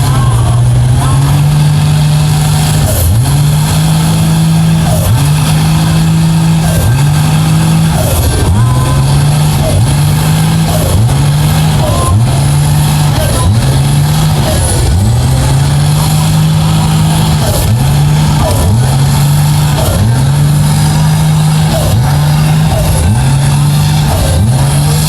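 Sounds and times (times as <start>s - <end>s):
truck engine revving: 0.0s - 25.0s.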